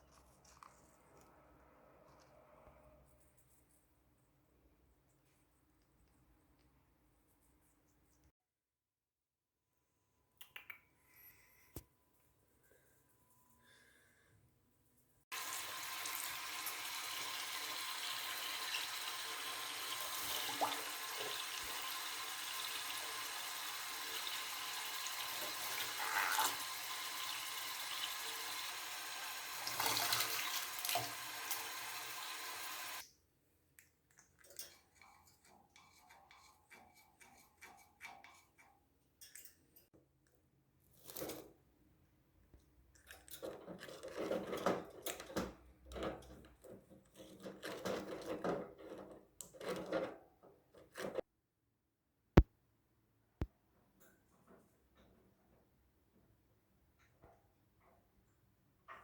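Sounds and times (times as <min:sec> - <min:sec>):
faint small clicks: 0:10.4 - 0:10.9
water running: 0:15.3 - 0:33.0.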